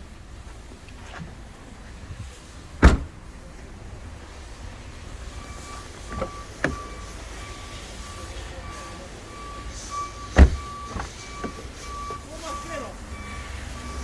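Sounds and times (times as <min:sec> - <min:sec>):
car door thump: 0:02.8 - 0:03.2, 0:05.6 - 0:07.0, 0:10.3 - 0:11.7.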